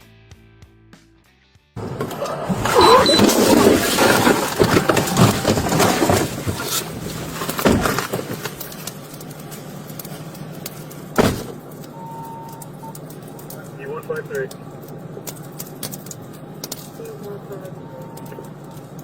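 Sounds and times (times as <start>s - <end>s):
vehicle rattling and knocking: 1.8s - 8.8s
steady low hum: 3.9s - 19.0s
loud thump: 11.2s - 11.6s.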